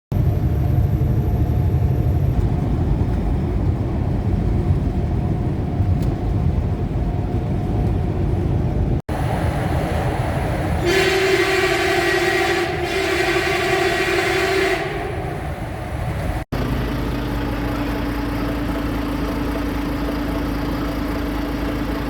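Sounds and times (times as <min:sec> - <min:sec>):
heavy vehicle low rumble: 0:00.1 - 0:22.0
long horn blast: 0:10.8 - 0:15.5.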